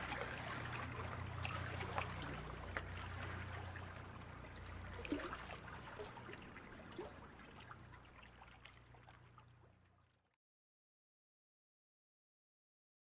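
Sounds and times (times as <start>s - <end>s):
paddle splashing water: 0.0s - 9.8s
low steady rumble: 0.0s - 10.4s.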